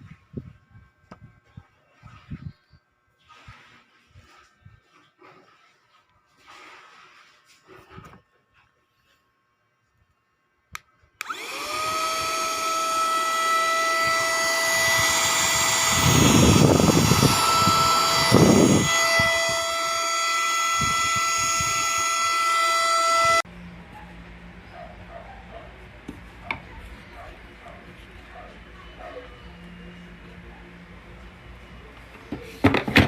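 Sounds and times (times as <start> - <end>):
mini vacuum cleaner whining: 11.2 - 23.4.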